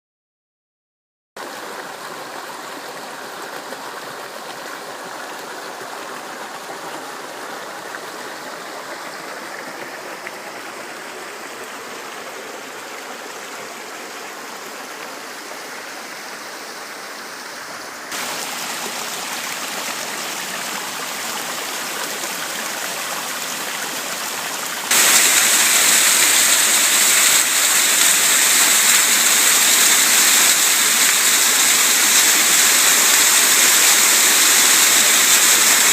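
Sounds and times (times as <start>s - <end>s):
waterfall roaring: 17.7s - 35.9s.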